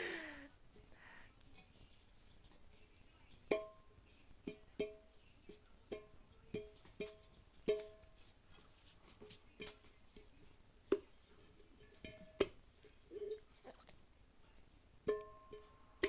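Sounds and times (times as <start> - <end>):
child hitting metal saucepan: 3.5 - 5.1.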